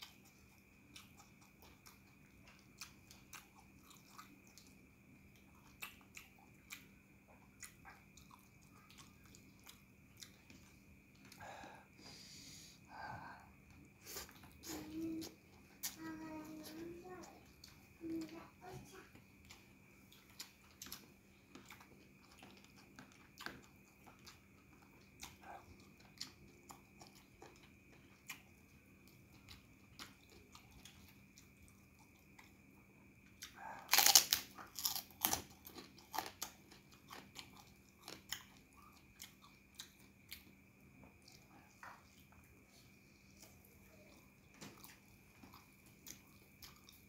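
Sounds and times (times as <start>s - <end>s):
person chewing food: 0.0s - 12.2s, 12.8s - 47.0s
cracker crunching: 33.8s - 39.9s.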